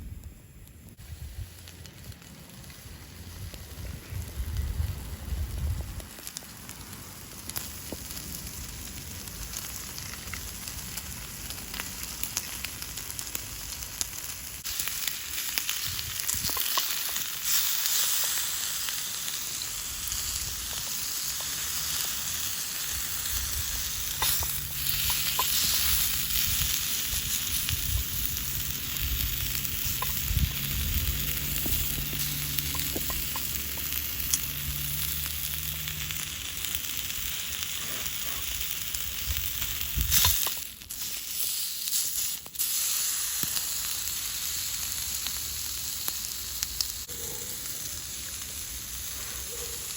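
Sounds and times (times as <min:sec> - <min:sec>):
meat sizzling in a skillet: 0:02.7 - 0:49.9
fat popping: 0:16.3 - 0:17.2, 0:24.0 - 0:26.1, 0:29.6 - 0:33.9, 0:40.0 - 0:40.7.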